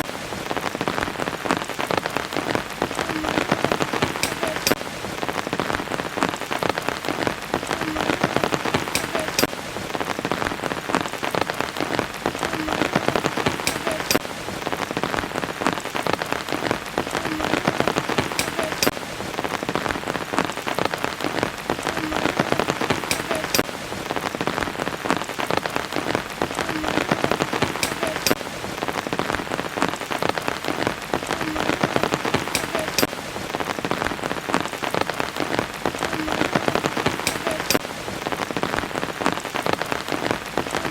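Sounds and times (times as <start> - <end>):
steady rain: 0.0 - 40.9
sharp drips: 6.5 - 9.6, 21.9 - 23.7, 26.8 - 28.4, 31.4 - 33.2.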